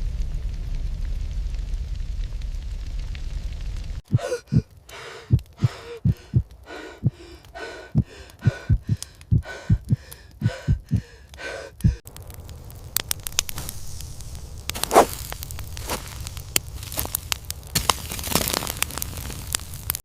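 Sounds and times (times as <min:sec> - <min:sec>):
heavy fast gasping breaths: 0:04.1 - 0:12.0
deep thumps: 0:07.9 - 0:11.1.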